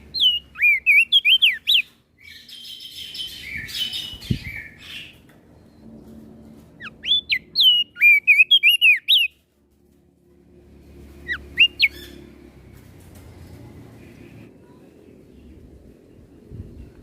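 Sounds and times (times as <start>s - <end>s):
bird singing high whistled notes: 0.1s - 5.2s, 6.8s - 9.3s, 11.3s - 12.2s.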